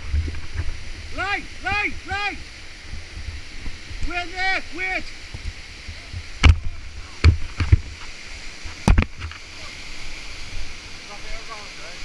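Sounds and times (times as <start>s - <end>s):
waterfall rushing: 0.0s - 12.0s
heavy thumps: 5.3s - 7.9s.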